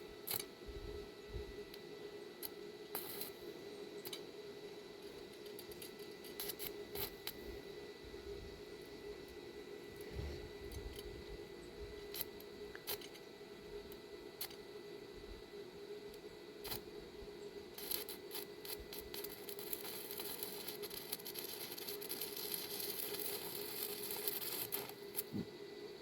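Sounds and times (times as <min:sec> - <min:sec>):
steady hum: 0:00.0 - 0:26.0
welding arc crackle: 0:00.2 - 0:00.5, 0:02.4 - 0:03.4, 0:04.0 - 0:04.2, 0:05.0 - 0:07.5, 0:12.0 - 0:13.2, 0:13.8 - 0:14.6, 0:16.1 - 0:26.0.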